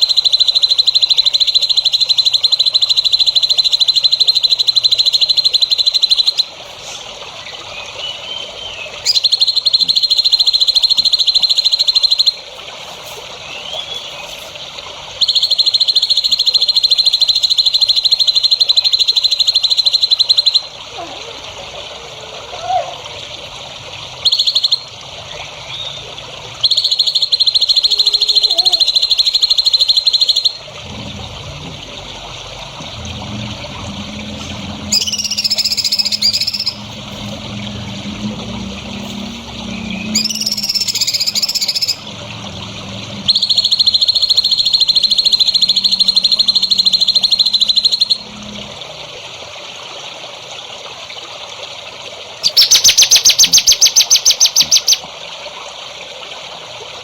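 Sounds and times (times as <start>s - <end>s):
bird warbling song: 0.0s - 14.6s, 15.2s - 20.7s, 24.2s - 26.0s, 26.6s - 30.6s, 34.3s - 37.4s, 38.9s - 42.1s, 43.2s - 48.4s, 52.4s - 55.1s
steady hiss: 6.5s - 7.4s
bird buzzing trills: 34.0s - 48.6s.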